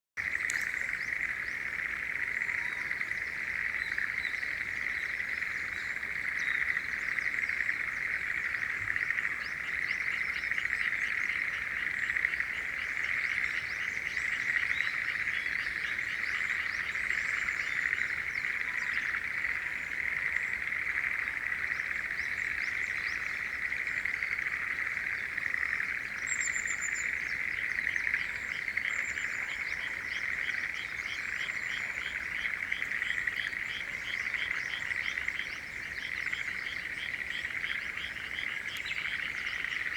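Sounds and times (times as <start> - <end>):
frogs calling: 0.2 - 39.9
quick rattling frog calls: 0.2 - 39.9.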